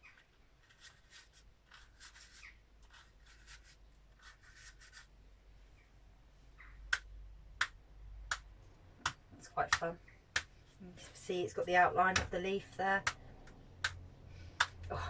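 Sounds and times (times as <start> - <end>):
brush scratching ink onto paper: 0.7 - 5.1.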